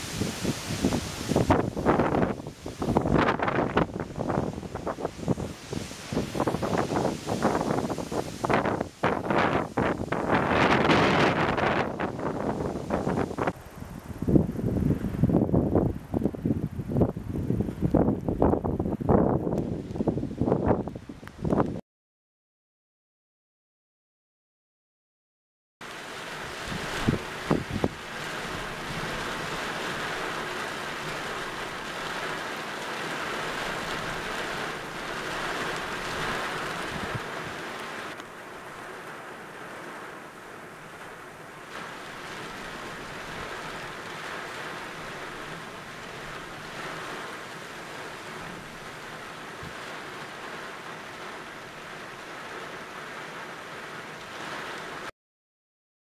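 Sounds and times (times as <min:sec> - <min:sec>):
rain: 0:00.0 - 0:21.8, 0:25.8 - 0:55.1
strong gusting wind: 0:00.0 - 0:21.8, 0:26.4 - 0:31.8, 0:33.5 - 0:38.2
wind buffeting microphone: 0:00.0 - 0:21.8, 0:26.6 - 0:28.0, 0:35.8 - 0:37.6.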